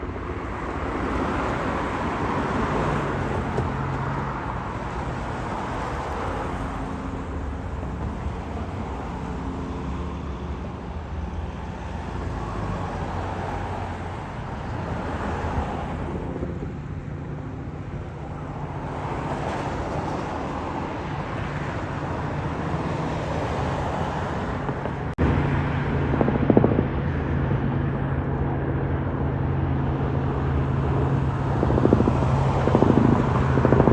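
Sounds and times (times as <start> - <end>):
road traffic noise: 0.0 - 33.9
helicopter flying past: 24.6 - 33.9.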